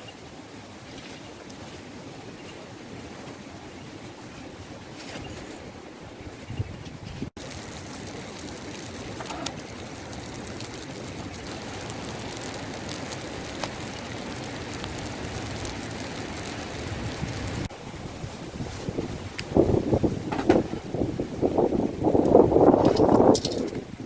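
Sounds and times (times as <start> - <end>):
strong wind over microphone: 4.4 - 7.4, 11.3 - 24.0.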